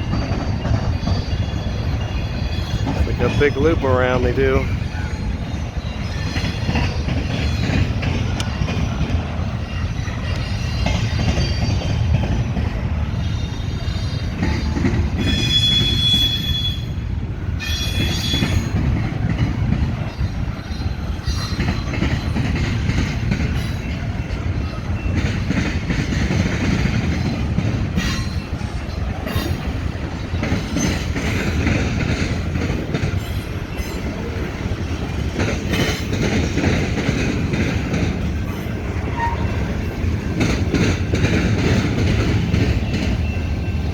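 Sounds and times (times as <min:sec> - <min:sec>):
high wheel squeal: 0:00.0 - 0:08.0, 0:08.7 - 0:12.2, 0:13.0 - 0:17.0, 0:17.6 - 0:18.9, 0:27.1 - 0:31.9, 0:38.4 - 0:40.2
train wheels rumbling on rail: 0:00.0 - 0:43.9.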